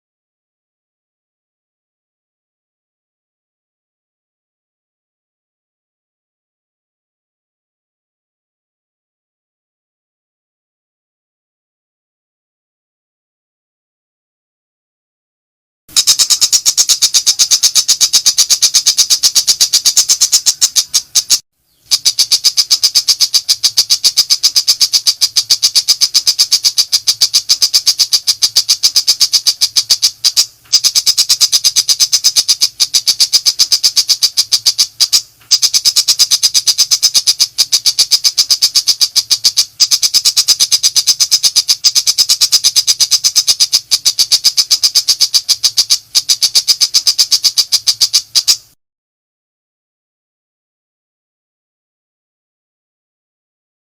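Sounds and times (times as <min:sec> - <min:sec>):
bird chattering high notes: 0:15.9 - 0:48.8.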